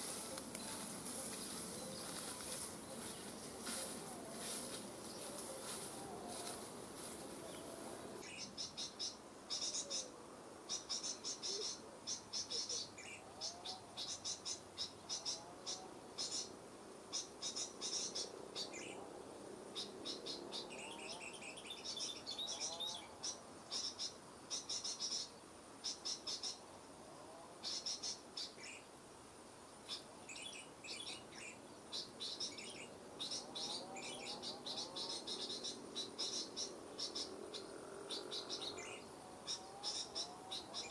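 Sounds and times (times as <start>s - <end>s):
small birds twittering: 0.0s - 19.0s, 19.7s - 26.6s, 29.8s - 40.9s
lower bird calls: 29.9s - 40.9s.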